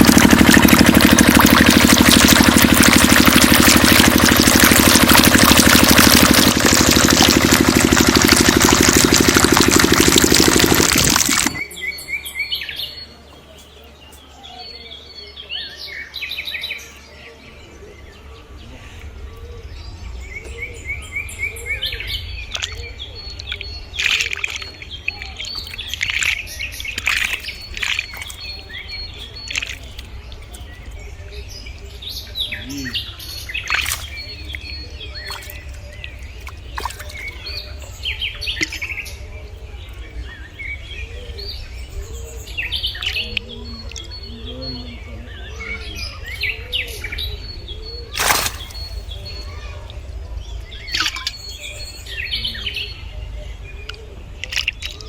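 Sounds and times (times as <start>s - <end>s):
steady low hum: 0.0s - 11.6s
birds chirping and calling: 8.2s - 55.0s.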